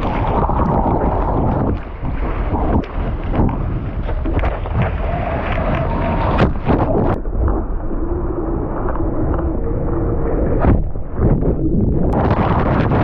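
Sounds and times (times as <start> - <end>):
rushing surf water: 0.0 - 7.5
wind buffeting microphone: 0.0 - 13.0.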